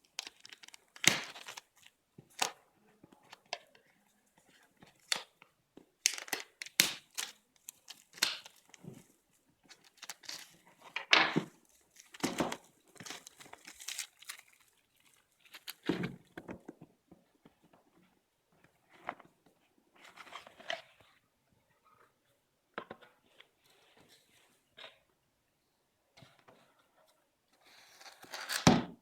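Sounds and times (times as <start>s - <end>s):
packaging crinkling and rustling: 0.0s - 2.6s, 6.0s - 16.6s.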